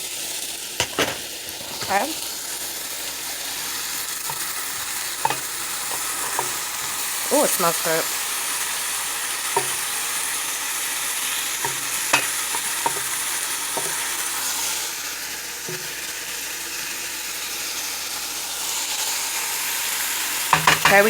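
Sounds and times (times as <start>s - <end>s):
chicken sizzling in a pot: 0.0s - 21.0s
utensil clicking against a pot: 4.2s - 7.2s, 9.5s - 10.0s, 11.5s - 14.5s.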